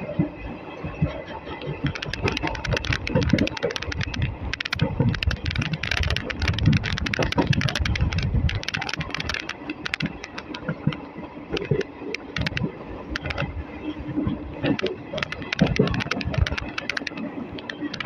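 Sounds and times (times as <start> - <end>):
train coach rattling on track: 0.0 - 18.0.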